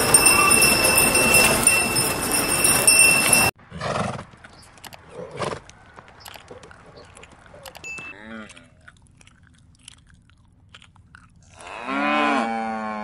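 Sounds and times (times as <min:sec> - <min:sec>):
thin high whining tones: 0:00.0 - 0:03.5
horse calling: 0:00.0 - 0:09.0
noisy outdoor background: 0:00.0 - 0:13.0.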